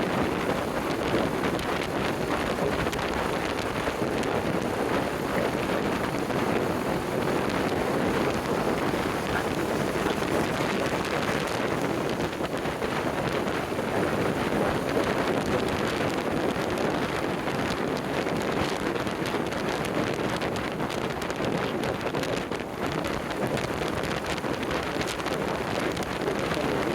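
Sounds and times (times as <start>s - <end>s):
motorcycle road noise: 0.0s - 15.0s
wind buffeting microphone: 0.0s - 26.9s.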